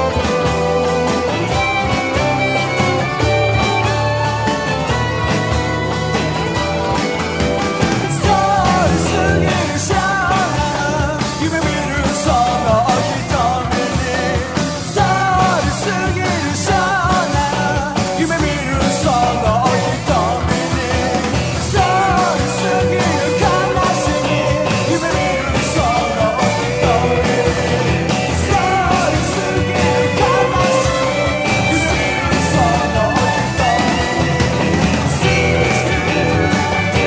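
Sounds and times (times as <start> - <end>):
lead melody with bending notes: 0.0 - 13.6
rock band playing: 0.0 - 37.0.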